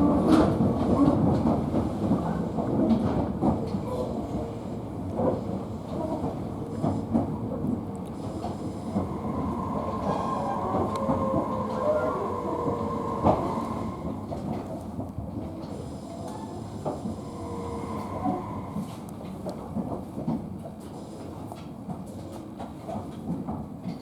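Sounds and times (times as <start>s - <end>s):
train wheel-on-rail rumble: 0.0s - 24.0s.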